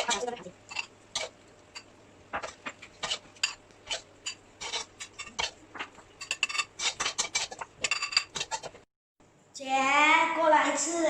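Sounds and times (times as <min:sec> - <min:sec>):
utensil scraping a pot: 0:00.0 - 0:08.8.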